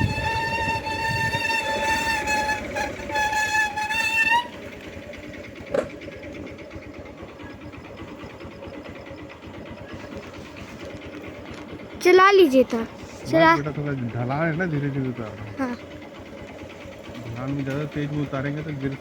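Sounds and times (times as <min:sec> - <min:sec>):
vehicle horn blast: 0:00.0 - 0:04.7
vehicle running: 0:00.0 - 0:19.0.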